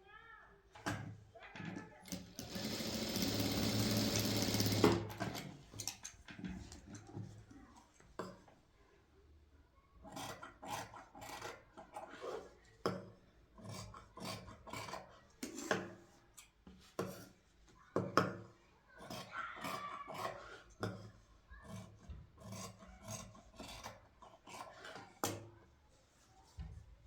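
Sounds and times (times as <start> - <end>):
sewing machine running: 2.1 - 5.4.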